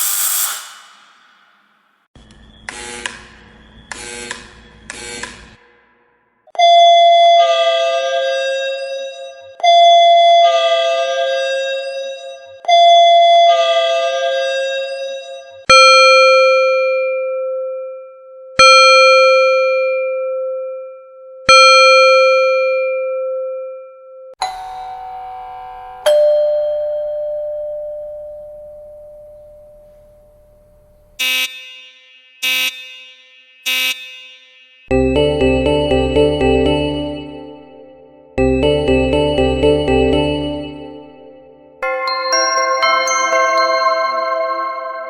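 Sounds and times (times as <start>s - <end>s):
two-note ding-dong doorbell: 21.5s - 29.9s, 41.8s - 45.0s
doorbell chime ringing: 26.1s - 29.2s, 41.8s - 45.0s
buzzing electronic doorbell rings: 31.2s - 34.9s.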